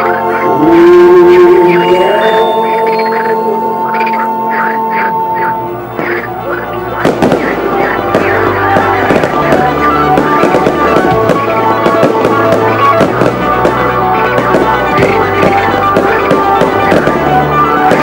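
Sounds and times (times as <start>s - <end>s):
loud music: 0.0s - 18.0s
fireworks popping and crackling: 7.0s - 18.0s.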